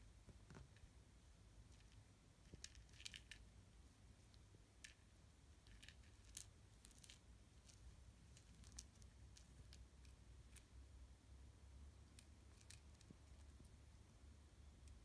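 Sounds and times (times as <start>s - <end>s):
faint irregular clicks: 4.2s - 10.7s, 14.8s - 15.0s.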